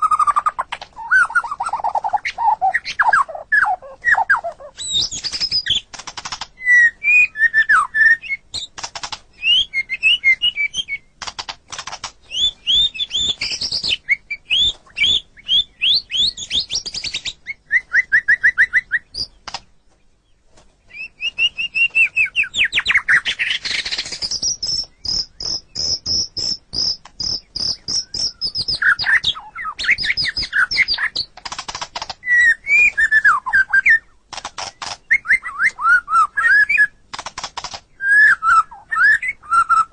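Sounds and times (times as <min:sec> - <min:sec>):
songbird singing trills and whistles: 0:00.0 - 0:11.5, 0:12.2 - 0:39.9.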